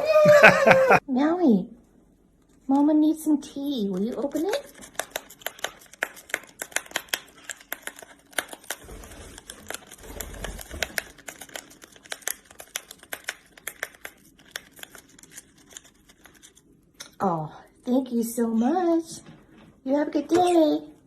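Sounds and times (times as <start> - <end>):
wrapping crinkling and tearing: 3.8 - 16.9.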